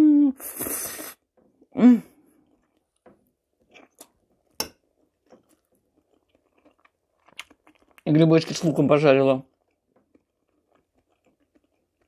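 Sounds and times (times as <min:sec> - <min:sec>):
wet chewing mouth clicks: 0:05.4 - 0:08.1, 0:09.4 - 0:12.0.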